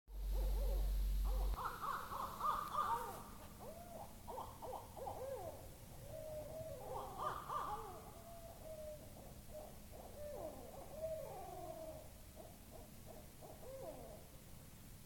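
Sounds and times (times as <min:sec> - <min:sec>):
steady low hum: 0:00.1 - 0:06.8
owl hooting rapidly: 0:00.2 - 0:14.3.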